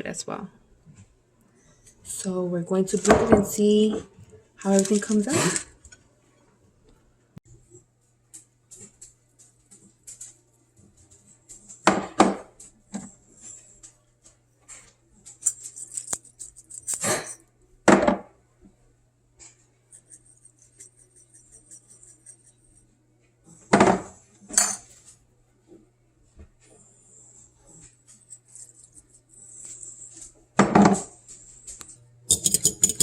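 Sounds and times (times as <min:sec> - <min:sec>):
dishes and utensils clinking: 0:32.3 - 0:33.0.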